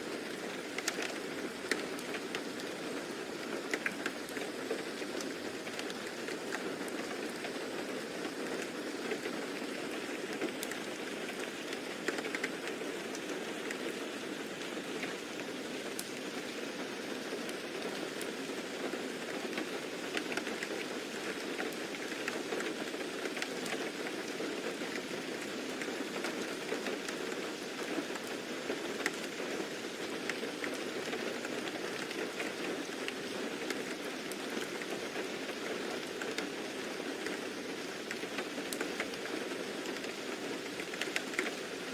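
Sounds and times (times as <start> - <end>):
rain pattering: 0.0 - 41.9.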